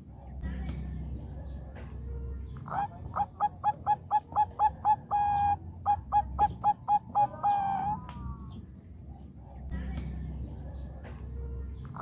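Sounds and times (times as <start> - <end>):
dove cooing: 2.7 - 8.1.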